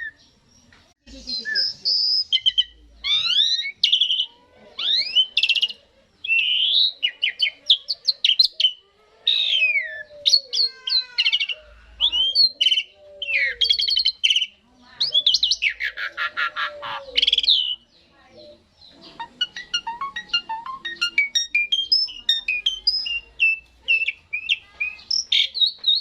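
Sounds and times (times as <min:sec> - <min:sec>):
starling song: 0:18.8 - 0:25.6.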